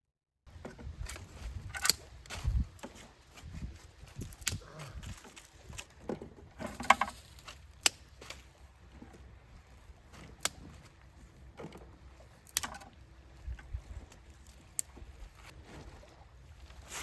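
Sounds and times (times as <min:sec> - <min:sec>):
sharp clicks and knocks: 0:12.5 - 0:13.0.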